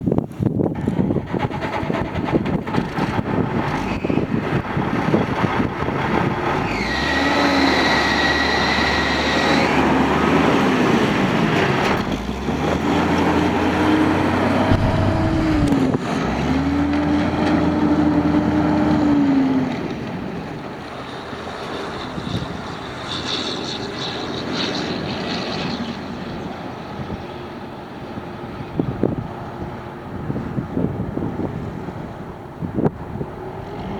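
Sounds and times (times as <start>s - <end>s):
wind on microphone: 0.0s - 6.7s, 14.3s - 16.6s
diesel truck engine revving: 2.9s - 19.7s
high steady whine: 14.7s - 16.1s.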